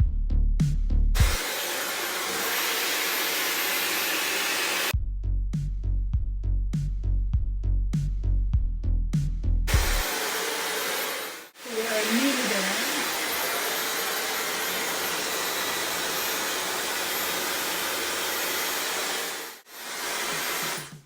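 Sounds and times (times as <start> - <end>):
hair dryer blowing: 1.2 - 4.9, 9.7 - 21.0.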